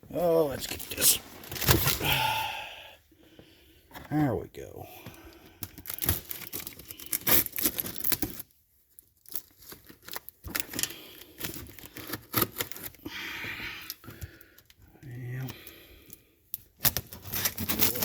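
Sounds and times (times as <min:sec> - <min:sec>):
cardboard crinkling and rustling: 0:00.2 - 0:02.1, 0:05.7 - 0:13.0, 0:16.8 - 0:18.0
packing tape ripping: 0:05.8 - 0:08.4, 0:09.4 - 0:13.0, 0:16.8 - 0:18.0.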